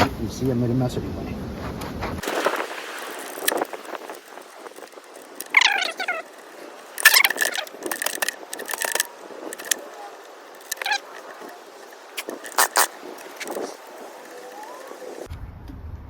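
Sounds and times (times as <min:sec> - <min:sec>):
leaf blower starter cord pulls: 0:02.2 - 0:15.3.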